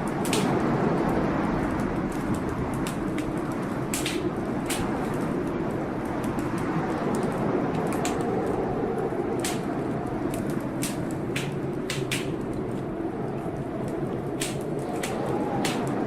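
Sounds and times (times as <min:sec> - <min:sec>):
blizzard wind whistling: 0:00.0 - 0:16.0
fireplace crackling: 0:00.0 - 0:16.0.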